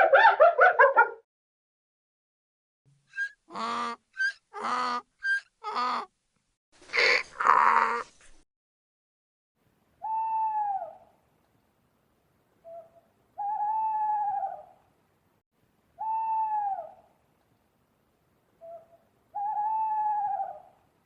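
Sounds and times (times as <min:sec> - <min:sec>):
animal calling: 0:03.1 - 0:06.1.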